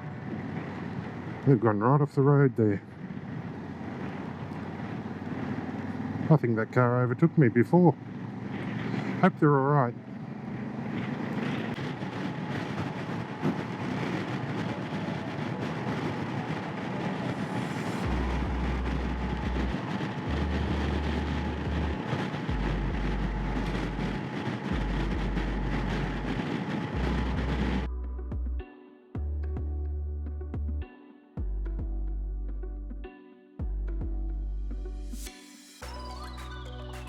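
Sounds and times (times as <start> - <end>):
wind and road noise hiss: 0.0 - 27.9
low rumble: 11.4 - 28.6, 31.4 - 36.9.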